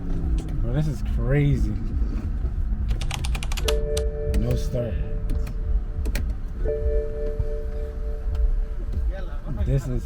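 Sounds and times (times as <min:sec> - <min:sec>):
low rumble: 0:00.0 - 0:09.7
bell-like ringing tone: 0:03.8 - 0:05.2, 0:06.6 - 0:08.7.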